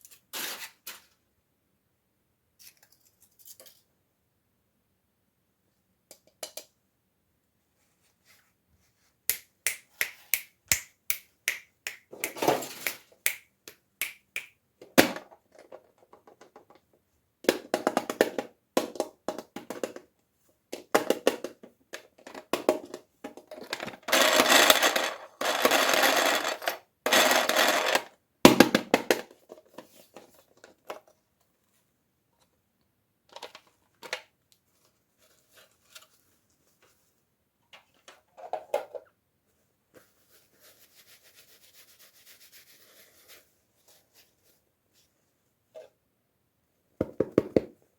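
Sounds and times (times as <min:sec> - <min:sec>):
packaging crinkling and scraping: 0:23.9 - 0:28.1.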